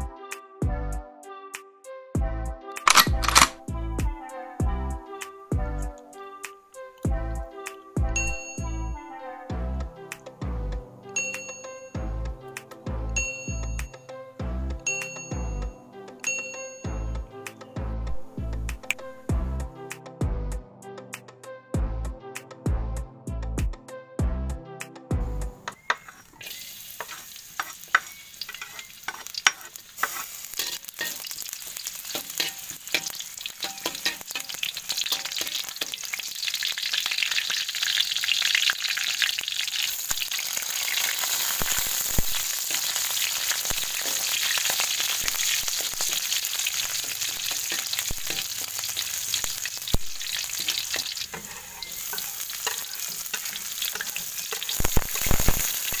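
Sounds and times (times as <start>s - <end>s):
garlic sizzling in hot oil: 25.8s - 56.0s.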